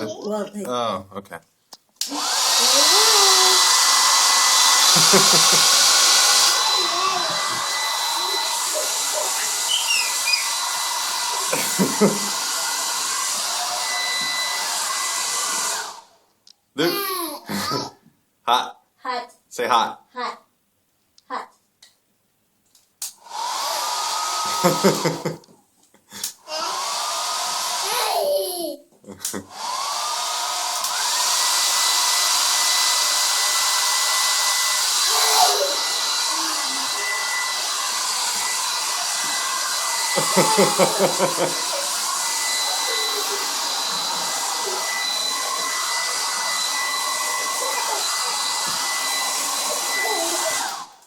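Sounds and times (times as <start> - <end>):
hair dryer blowing: 2.0 - 16.2, 23.2 - 25.4, 26.1 - 28.5, 29.2 - 51.0
bursts of laughter: 4.9 - 5.8, 40.2 - 41.9.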